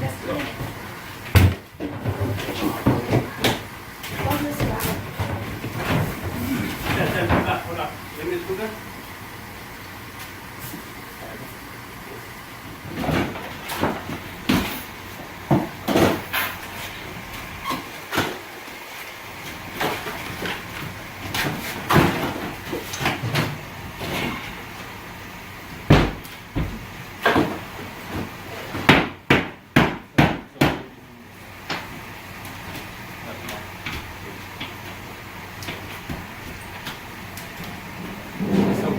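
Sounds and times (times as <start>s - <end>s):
knocks of cabinetry being demolished: 0.0s - 7.8s, 12.7s - 25.0s, 25.6s - 30.9s, 35.6s - 38.9s.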